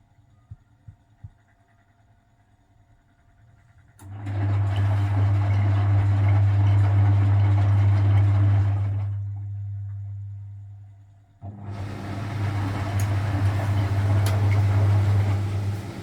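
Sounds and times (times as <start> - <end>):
washing machine motor hum: 3.5 - 16.0.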